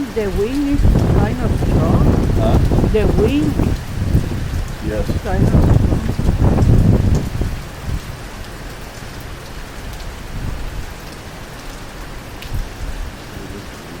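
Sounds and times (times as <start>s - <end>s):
rain falling: 0.0s - 14.0s
low rumble: 0.7s - 8.1s.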